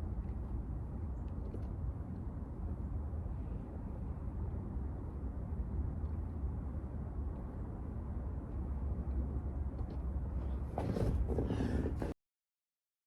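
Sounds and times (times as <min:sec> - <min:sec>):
low outdoor rumble: 0:00.0 - 0:12.2.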